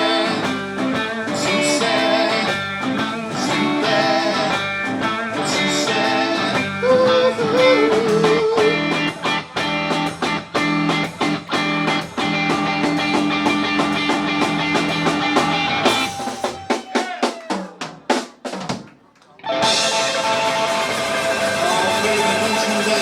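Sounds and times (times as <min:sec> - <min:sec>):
live blues rock band: 0:00.0 - 0:23.0
drum hits: 0:06.9 - 0:18.9.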